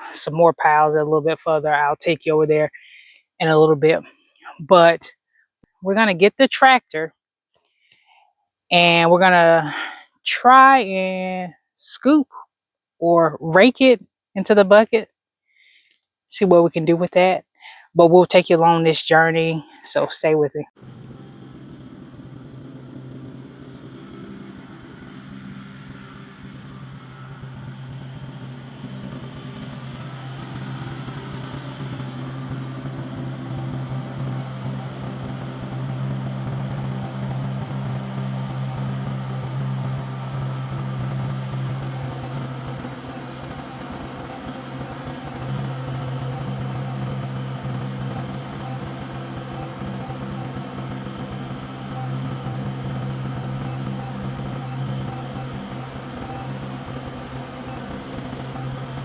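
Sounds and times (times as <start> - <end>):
tractor diesel engine running: 20.8 - 59.0.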